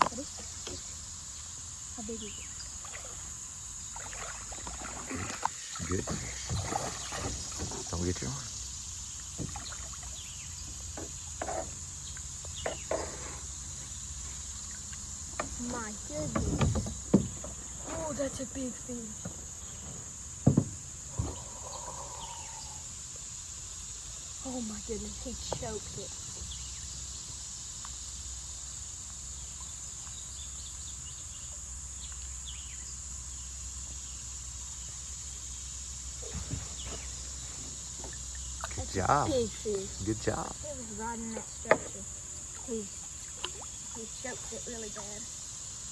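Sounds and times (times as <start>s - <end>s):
insects droning: 0.0s - 45.9s.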